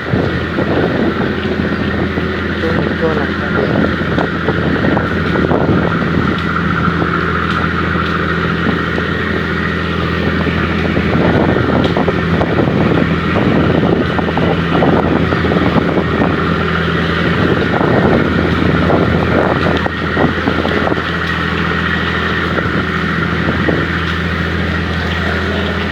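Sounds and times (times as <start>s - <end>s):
ferry engines droning: 0.0s - 25.9s.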